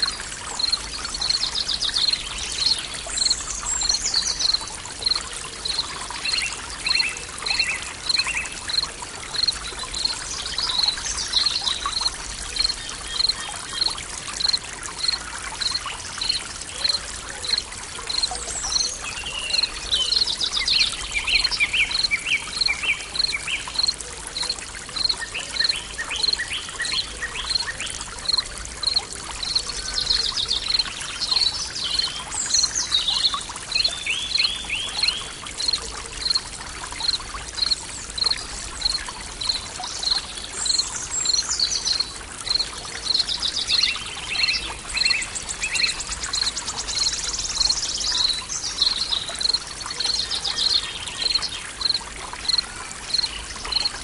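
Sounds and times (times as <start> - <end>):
songbirds chirping and trilling: 0.0 - 36.4
stream water running: 0.0 - 54.0.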